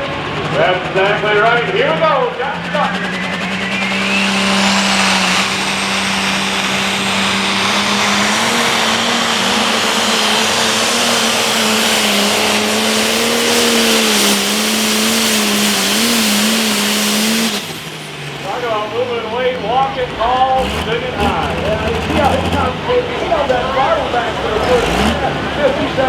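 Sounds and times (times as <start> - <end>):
turbo whine: 0.0 - 24.7
pulling tractor engine under load: 0.0 - 26.0.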